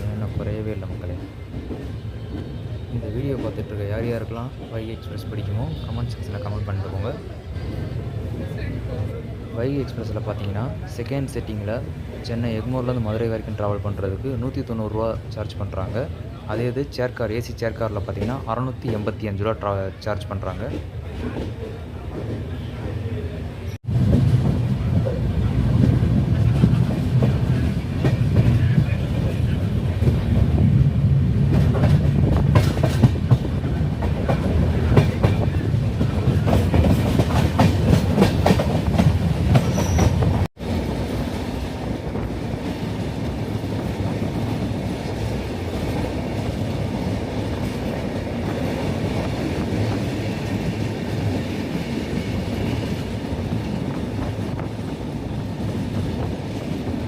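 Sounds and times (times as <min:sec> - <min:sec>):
train running rumble: 0:23.4 - 0:57.0
train wheels clattering over rail joints: 0:31.4 - 0:57.0.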